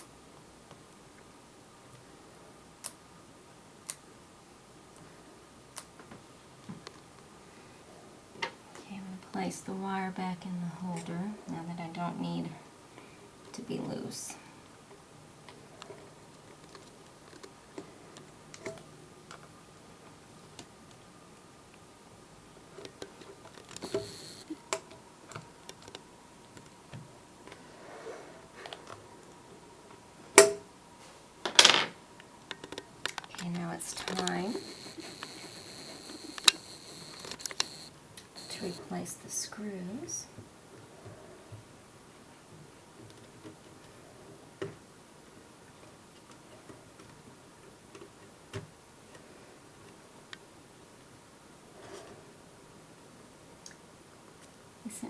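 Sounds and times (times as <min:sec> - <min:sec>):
laptop parts clicking and tapping: 0:22.9 - 0:24.9, 0:32.5 - 0:37.9.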